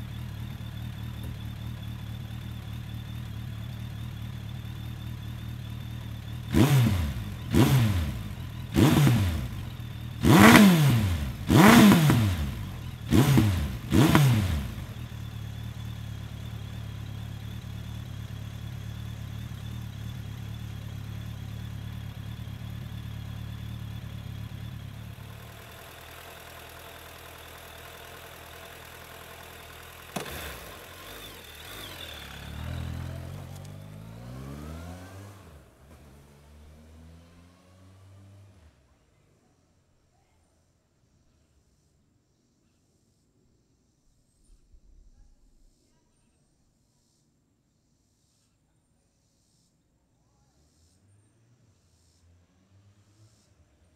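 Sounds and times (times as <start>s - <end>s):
motorcycle pulling away: 0.0s - 38.9s
motorcycle engine idling and revving: 0.0s - 39.4s, 50.5s - 53.9s
click: 33.5s - 33.8s.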